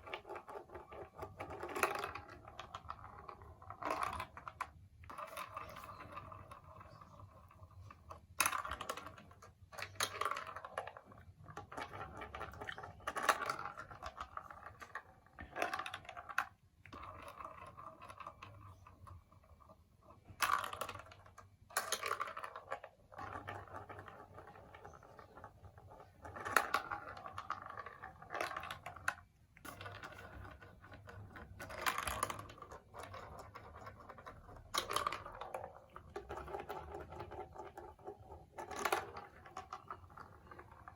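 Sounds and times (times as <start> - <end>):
marbles clacking on plastic: 0.0 - 40.9
marbles rolling and rattling: 0.0 - 40.9.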